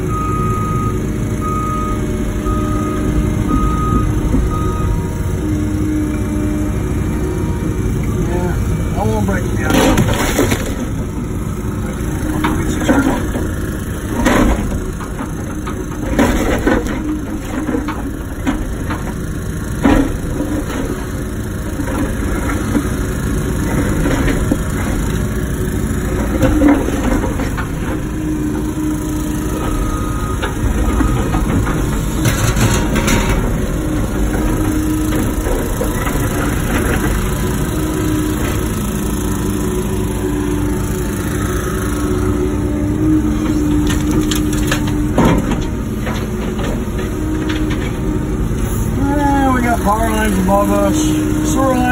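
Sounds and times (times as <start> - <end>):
excavator diesel engine running: 0.0 - 51.9
excavator scraping rock: 9.0 - 11.1, 12.2 - 18.9.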